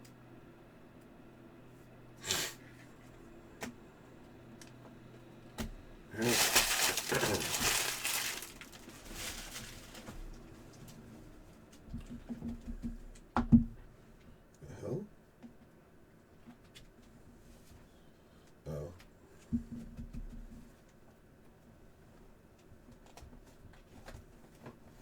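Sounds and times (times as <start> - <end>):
foil wrapper crinkling: 6.2 - 11.0.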